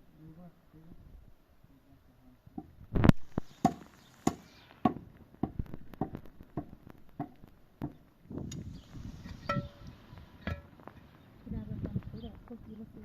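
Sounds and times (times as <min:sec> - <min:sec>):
tool striking wood: 0:03.6 - 0:08.0.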